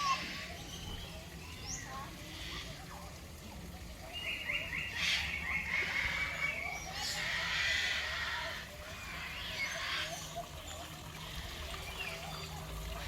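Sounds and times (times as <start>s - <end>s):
birds screechy calls: 4.1s - 12.6s.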